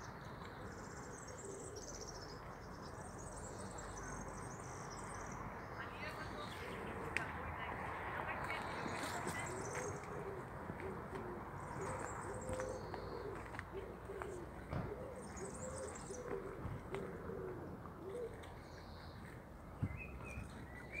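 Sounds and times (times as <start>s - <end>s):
small birds chirping: 0.0s - 10.5s, 11.6s - 16.6s, 18.1s - 21.0s.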